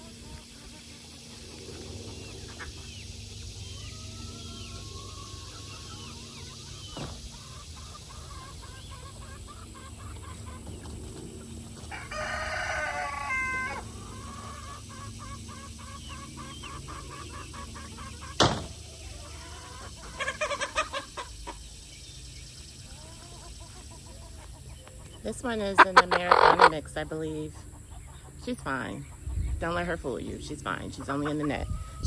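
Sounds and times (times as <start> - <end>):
chickens clucking: 0.0 - 32.0
chickens squawking loudly: 3.6 - 21.8, 25.5 - 26.9
rooster crowing: 11.9 - 13.9
sharp knock: 18.4 - 18.8.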